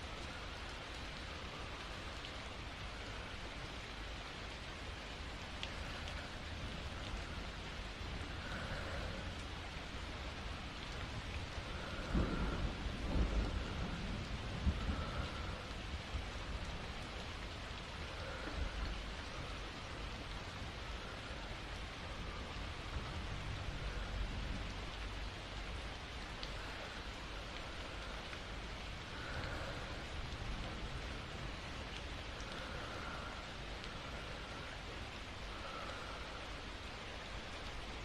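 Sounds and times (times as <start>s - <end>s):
soft breaths: 0.0s - 38.0s
steady rain: 0.0s - 38.0s
distant thunder rumble: 11.5s - 16.9s.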